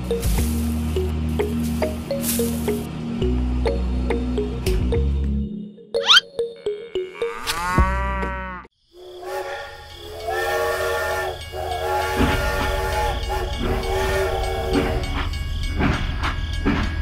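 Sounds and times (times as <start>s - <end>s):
toy train steam whistle: 9.0s - 15.2s.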